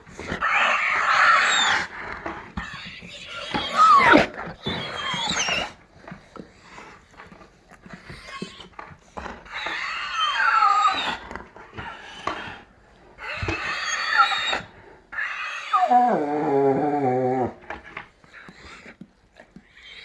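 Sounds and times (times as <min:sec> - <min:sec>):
dog whining and grumbling: 0:02.6 - 0:05.8, 0:09.5 - 0:12.6, 0:13.2 - 0:17.9.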